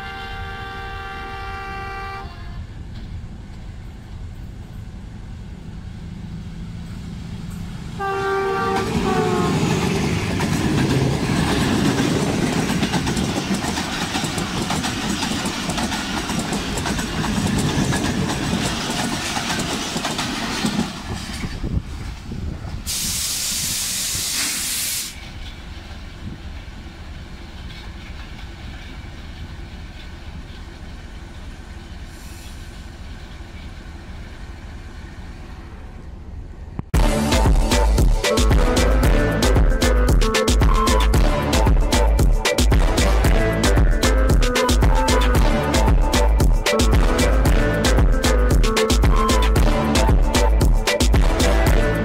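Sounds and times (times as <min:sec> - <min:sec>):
diesel locomotive horn blast: 0:00.0 - 0:02.8, 0:08.0 - 0:10.4, 0:37.0 - 0:52.0
diesel locomotive idling: 0:00.0 - 0:52.0
train passing with wheel noise: 0:00.0 - 0:52.0
loud hiss: 0:22.8 - 0:25.4, 0:32.0 - 0:33.1.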